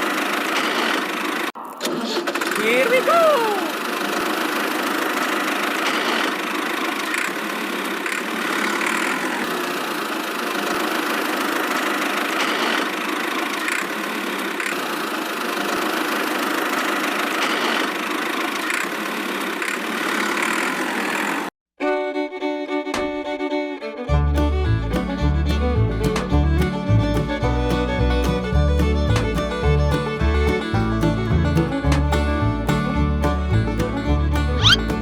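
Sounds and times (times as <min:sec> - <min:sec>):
small motor running: 0:34.6 - 0:35.0.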